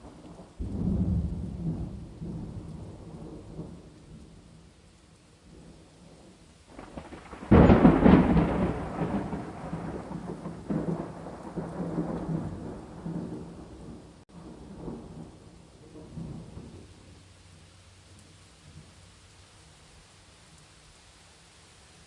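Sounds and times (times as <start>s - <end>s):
thunder clap and rumble: 0.0s - 4.4s, 6.7s - 17.0s
steady rain: 0.0s - 22.0s.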